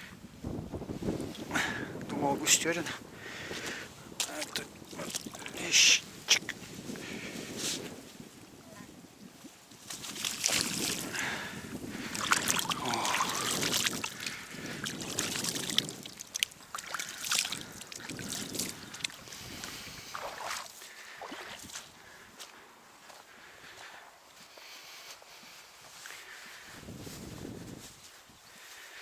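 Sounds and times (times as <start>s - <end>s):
water sloshing against boat: 3.7s - 5.6s, 9.9s - 21.8s.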